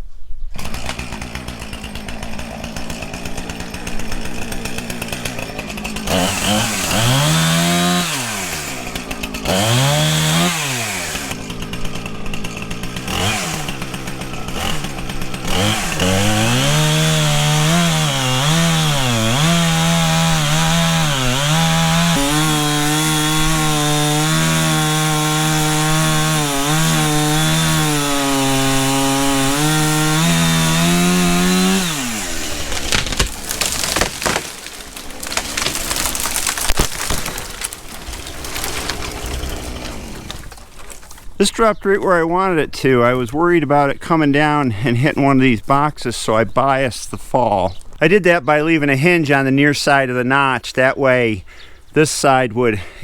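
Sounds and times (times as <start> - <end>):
chainsaw cutting tree: 0.5 - 41.4.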